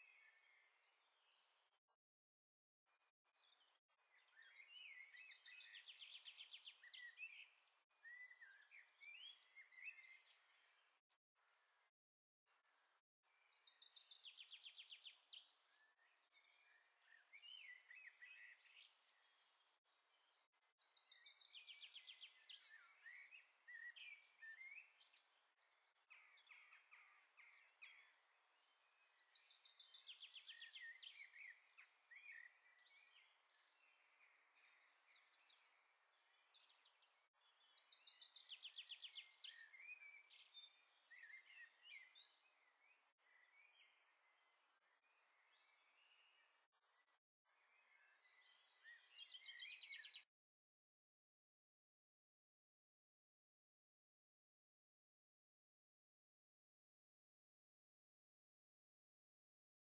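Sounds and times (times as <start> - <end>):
bird chirps: 20.8 - 50.3.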